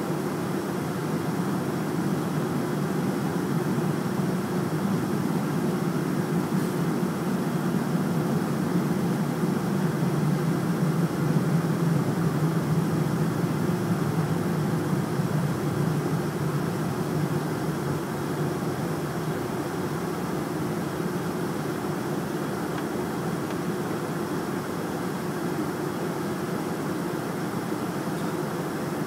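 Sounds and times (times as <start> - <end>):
jet engines running: 0.0 - 29.0.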